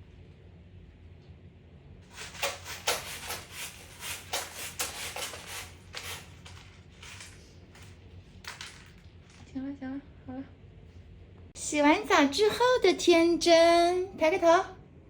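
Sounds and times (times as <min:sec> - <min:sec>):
quick rustling rubbing strokes: 0:02.1 - 0:07.5.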